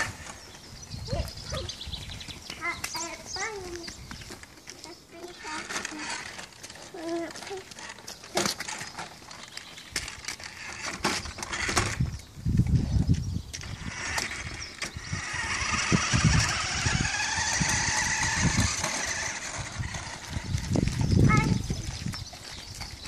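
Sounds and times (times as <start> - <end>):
toy truck electric motor whining: 5.2 - 12.2, 13.6 - 21.1.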